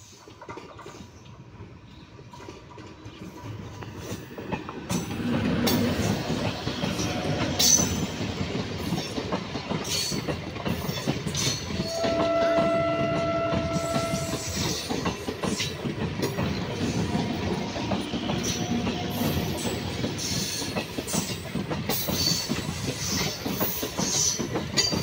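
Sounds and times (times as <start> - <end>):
train wheels clattering over rail joints: 0.0 - 25.0
train horn: 11.8 - 15.0.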